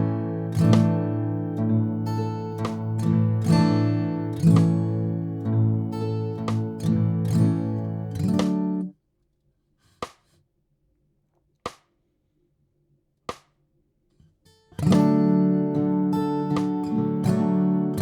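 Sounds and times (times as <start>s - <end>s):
acoustic guitar strumming: 0.0s - 8.9s, 14.8s - 18.0s.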